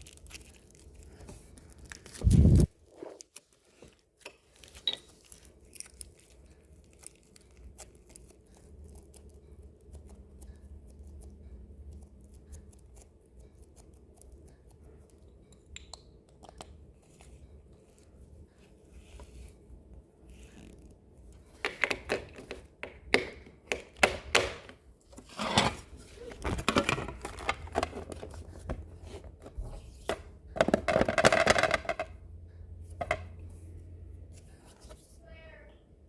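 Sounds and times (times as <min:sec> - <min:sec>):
slime crackling and popping: 0:04.6 - 0:10.1.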